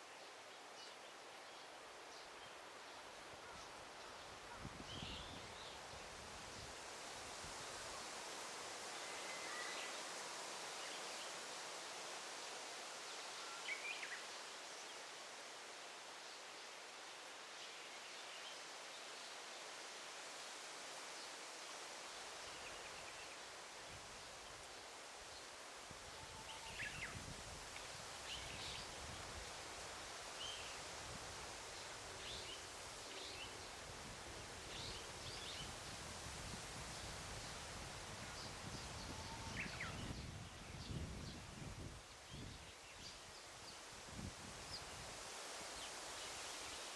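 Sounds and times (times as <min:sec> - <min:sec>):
leaves rustling in wind: 0:00.0 - 0:46.9
faint bird calls: 0:26.0 - 0:27.2, 0:39.0 - 0:39.9.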